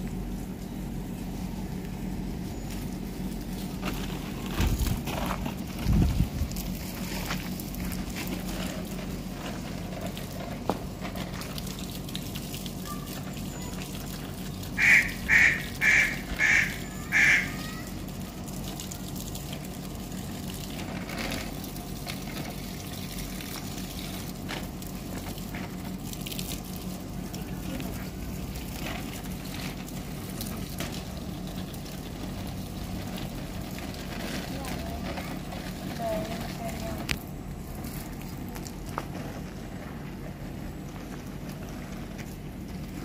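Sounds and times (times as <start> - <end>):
garden hose spraying water: 0.0 - 43.0
bird calling: 14.8 - 18.0.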